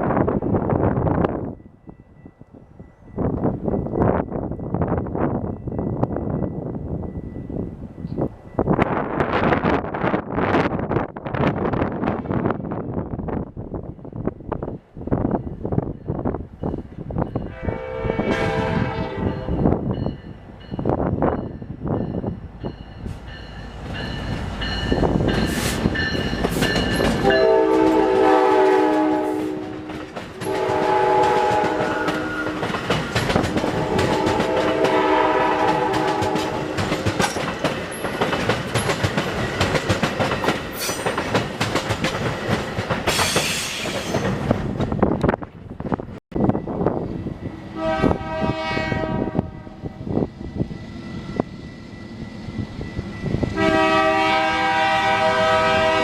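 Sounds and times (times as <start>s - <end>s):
train air horn blasts: 17.4s - 19.7s, 27.2s - 32.8s, 33.5s - 36.8s, 47.7s - 50.0s, 53.3s - 56.0s
train wheels clattering on rails: 19.4s - 47.2s.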